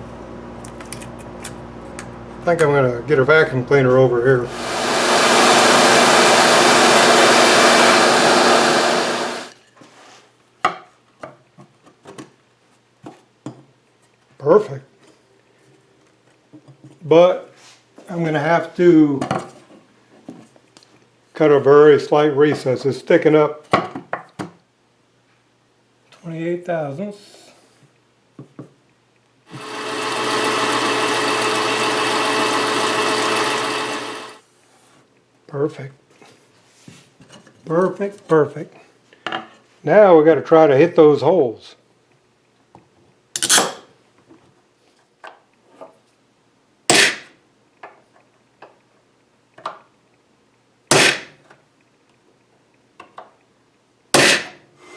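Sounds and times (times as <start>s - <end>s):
vacuum cleaner running: 4.4s - 9.6s, 29.5s - 34.4s
power tool motor whining: 4.5s - 9.5s, 29.5s - 34.4s.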